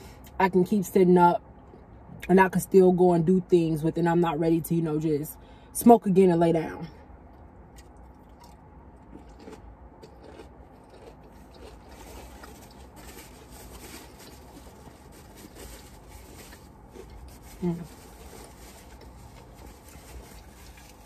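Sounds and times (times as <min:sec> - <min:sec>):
low steady hum: 0:00.0 - 0:21.0
quiet chewing: 0:07.3 - 0:21.0.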